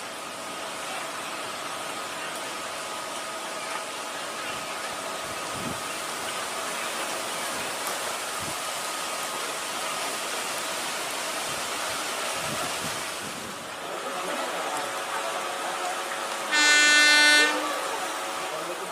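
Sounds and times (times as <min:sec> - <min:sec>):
wind gusts buffeting microphone: 0:12.3 - 0:13.7.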